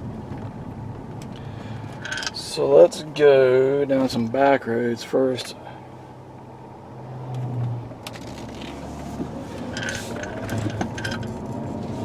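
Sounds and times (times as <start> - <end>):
car engine and road hum: 0.0 - 12.0.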